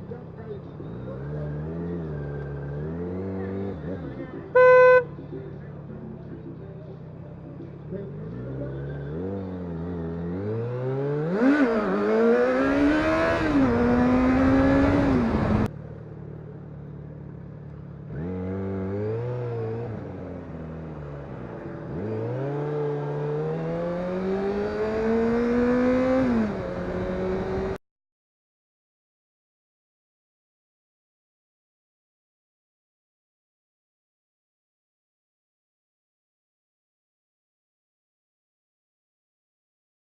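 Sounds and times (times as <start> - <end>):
motorcycle engine accelerating: 0.5 - 5.0, 7.9 - 27.8.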